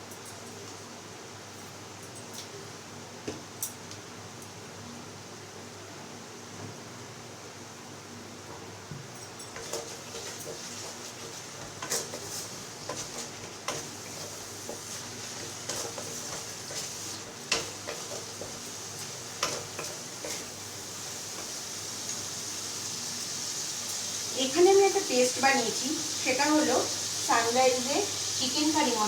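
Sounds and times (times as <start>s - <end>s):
onions sizzling in oil: 9.5s - 29.0s
spatula scraping a pan: 9.6s - 20.6s.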